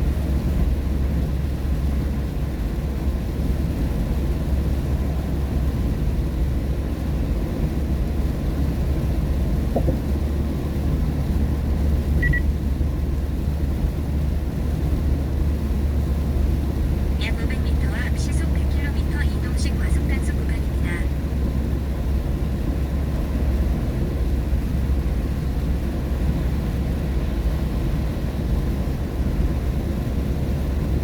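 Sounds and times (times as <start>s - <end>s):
short high beep: 12.2s - 12.4s.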